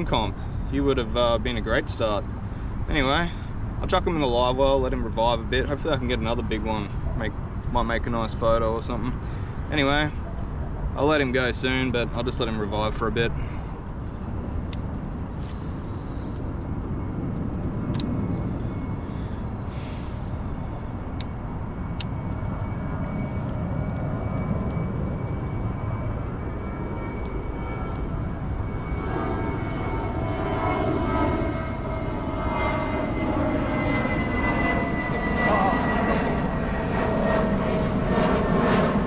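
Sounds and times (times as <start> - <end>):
aircraft engine drone: 0.0 - 39.0
high engine whine: 0.0 - 39.0.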